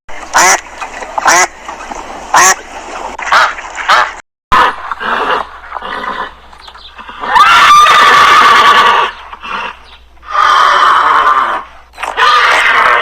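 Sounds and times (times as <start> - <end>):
farm animal giving high calls: 4.6 - 13.0.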